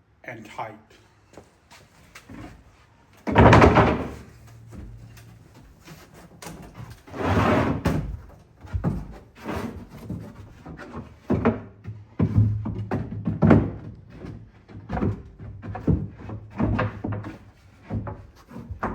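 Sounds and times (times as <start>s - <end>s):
plywood boards knocking: 3.2s - 5.1s, 10.0s - 18.9s.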